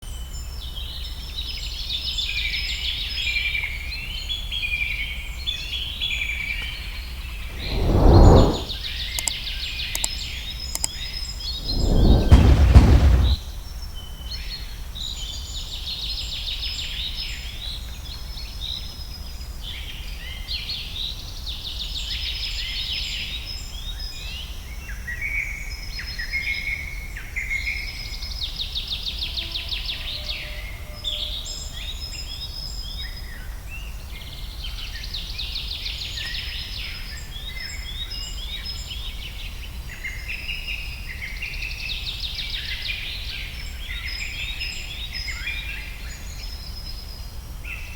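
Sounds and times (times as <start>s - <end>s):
low steady rumble: 7.5s - 8.8s, 11.6s - 13.4s.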